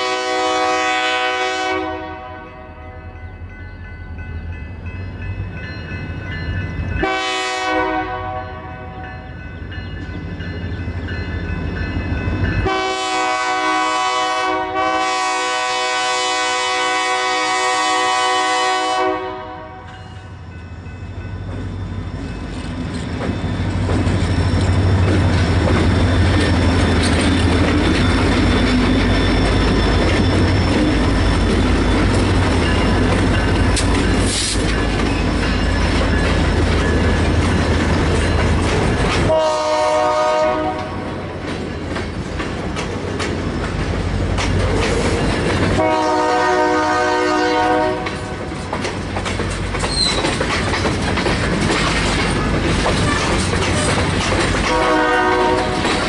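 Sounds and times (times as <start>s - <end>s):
train horn: 0.0s - 3.2s, 7.0s - 9.3s, 12.6s - 20.3s, 39.2s - 41.4s, 45.7s - 48.4s, 54.6s - 56.0s
locomotive engines running: 20.4s - 39.4s, 48.0s - 56.0s
train cars clattering over rails: 21.1s - 56.0s.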